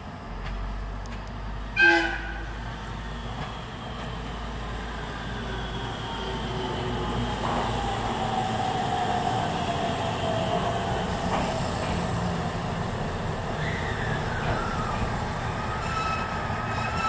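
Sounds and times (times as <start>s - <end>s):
railcar rumble: 0.0s - 17.0s
thin metallic squeal: 15.7s - 17.0s.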